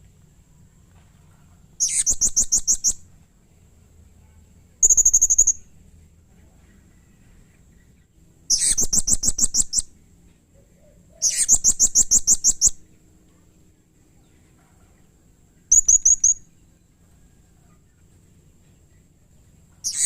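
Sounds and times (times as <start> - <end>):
parrot shrill chattering calls: 1.8 - 3.0, 4.8 - 5.6, 8.5 - 9.9, 11.2 - 12.7.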